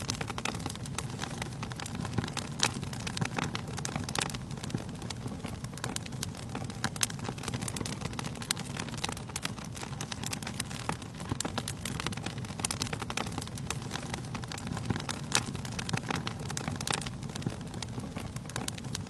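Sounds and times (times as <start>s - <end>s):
burning logs crackling and popping: 0.0s - 19.0s
low rumble of flames: 0.0s - 19.0s.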